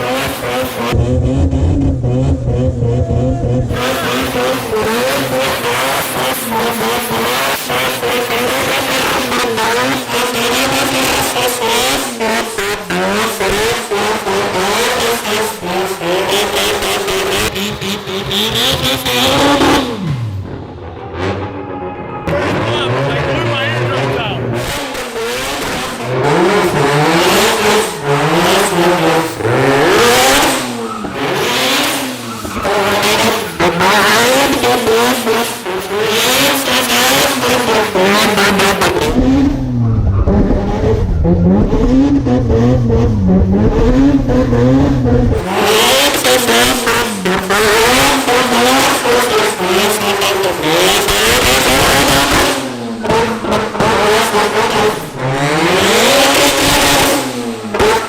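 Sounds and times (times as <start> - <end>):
car engine revving: 0.0 - 58.0
tyre squeal: 27.5 - 34.3.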